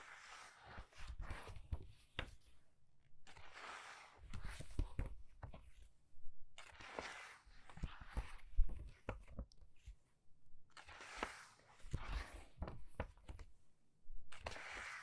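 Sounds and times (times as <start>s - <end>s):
book pages turning: 10.7s - 13.5s, 14.3s - 15.0s.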